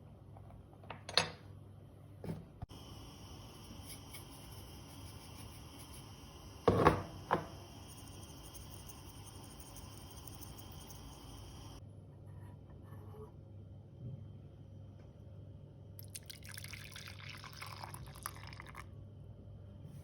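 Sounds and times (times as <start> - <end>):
kitchenware knocking and clattering: 6.6 - 7.6.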